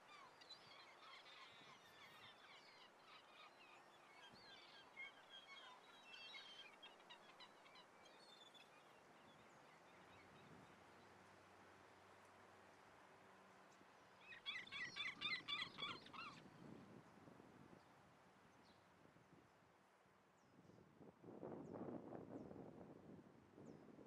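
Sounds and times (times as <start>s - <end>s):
flock of gulls calling: 14.3s - 16.4s.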